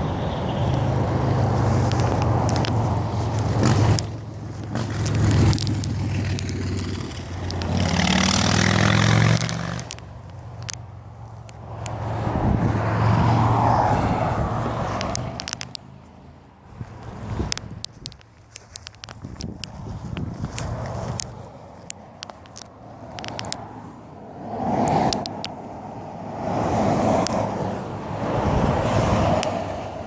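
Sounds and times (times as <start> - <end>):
pickup truck engine revving: 4.8 - 10.0.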